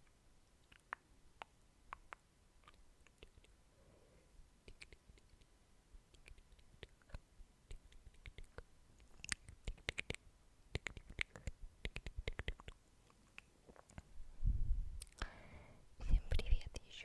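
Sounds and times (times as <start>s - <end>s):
wet lip and tongue clicks: 0.5s - 3.6s, 4.6s - 5.5s, 6.1s - 14.1s, 15.0s - 15.3s.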